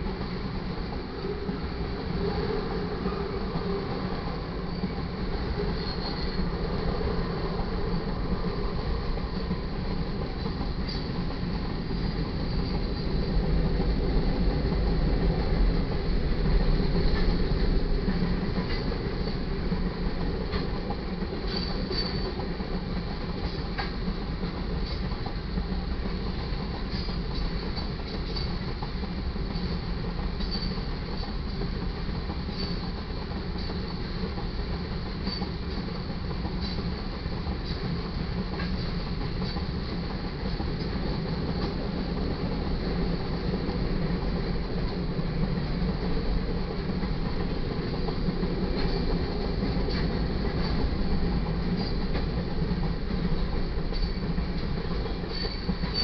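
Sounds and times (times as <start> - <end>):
steel wheels rumbling on rail: 0.0 - 56.0
train clanks: 0.0 - 56.0
high wheel squeals: 5.7 - 6.5, 55.3 - 56.0.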